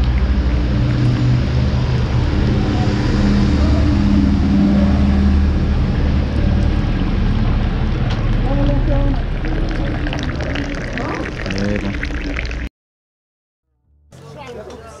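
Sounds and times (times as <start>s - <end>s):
vehicle engine running: 0.0s - 10.5s
street traffic: 0.0s - 11.8s.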